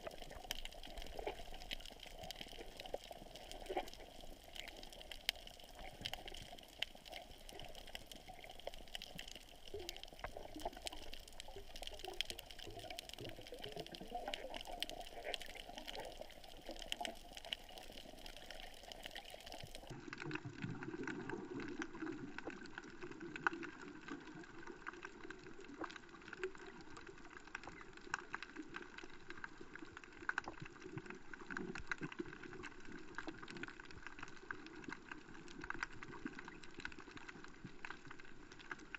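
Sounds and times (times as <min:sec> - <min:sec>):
muffled underwater noise: 0:00.0 - 0:19.9
sharp clicks and crackles: 0:00.0 - 0:38.9.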